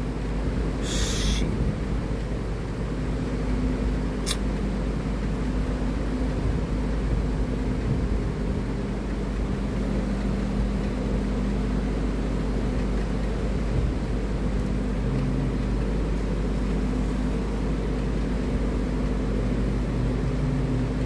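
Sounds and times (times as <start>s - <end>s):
low hum with faint tones: 0.0s - 21.0s
sharp click: 4.2s - 4.4s.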